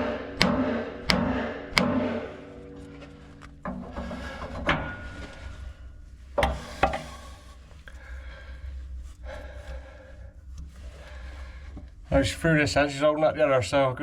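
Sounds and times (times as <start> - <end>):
tools knocking on steel boiler: 0.0 - 5.2, 6.4 - 7.1
low steady hum: 0.0 - 14.0.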